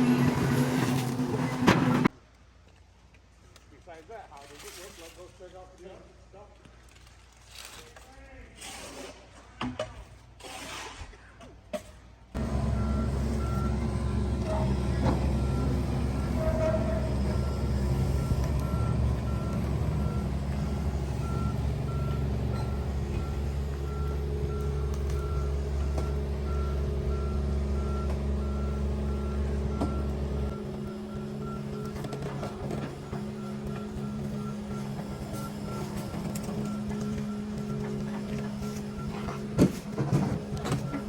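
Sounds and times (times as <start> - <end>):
diesel engine running: 0.0 - 2.1, 12.4 - 41.0
reversing alarm beeping: 12.4 - 41.0.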